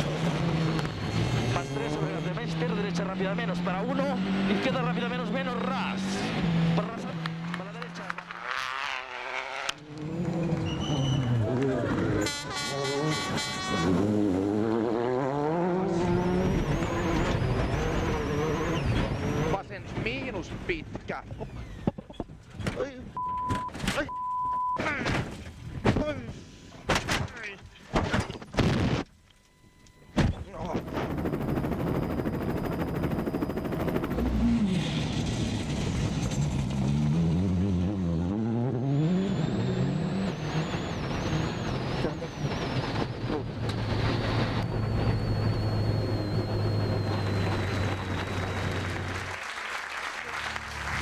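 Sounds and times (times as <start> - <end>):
rally car engine revving: 0.0 - 22.6, 30.0 - 49.4, 50.2 - 51.0
thin high whine: 39.1 - 49.3.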